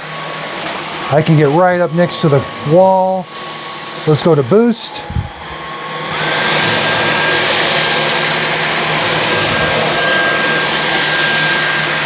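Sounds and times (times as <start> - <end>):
cordless vacuum motor whine: 0.0 - 12.0.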